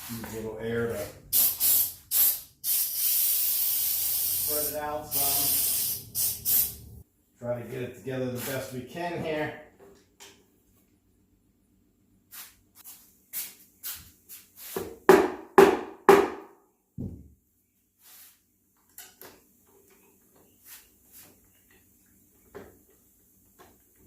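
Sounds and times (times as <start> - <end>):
dull thump: 17.0 - 17.3
wooden knocks on chair seat: 17.0 - 17.3.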